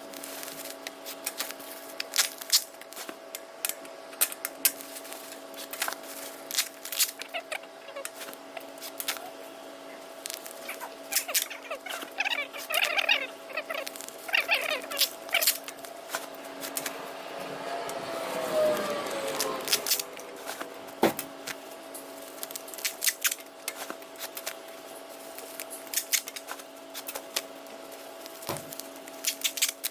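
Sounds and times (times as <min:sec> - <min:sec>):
steady hum: 0:00.0 - 0:29.9
squeaky scraping rustle: 0:04.9 - 0:09.4, 0:10.3 - 0:20.7, 0:28.0 - 0:29.9.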